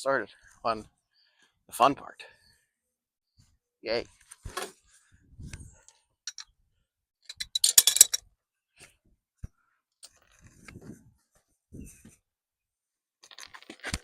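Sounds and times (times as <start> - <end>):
tools and metal parts clicking: 7.3 - 8.2.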